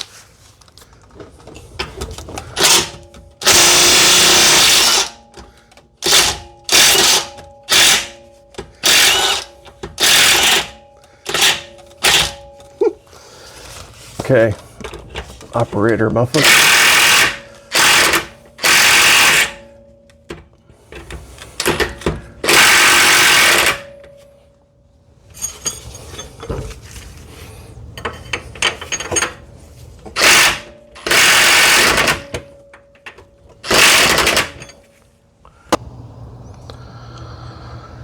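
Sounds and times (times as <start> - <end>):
air tool bursts: 2.5 - 5.2, 6.0 - 8.2, 8.8 - 12.4, 16.4 - 19.6, 22.4 - 23.8, 30.2 - 32.3, 33.7 - 34.6
metal knocks and clinks: 25.3 - 26.8.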